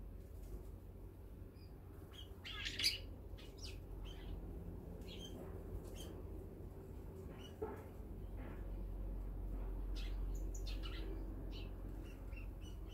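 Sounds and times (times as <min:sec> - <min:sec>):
high bird chirps: 0:01.6 - 0:04.3.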